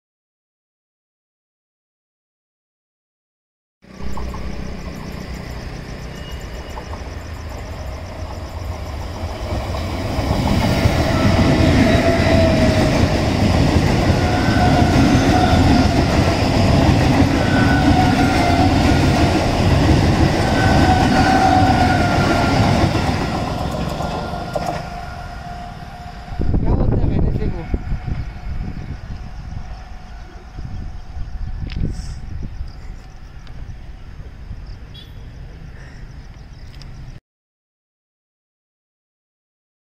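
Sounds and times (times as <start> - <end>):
train passing at speed: 3.9 - 35.8
train whine: 3.9 - 35.8.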